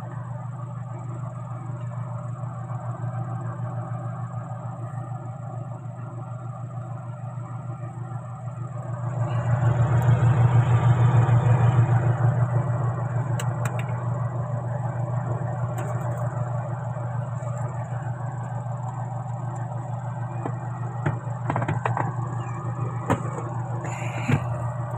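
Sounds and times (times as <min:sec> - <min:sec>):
motor humming: 0:08.9 - 0:24.9.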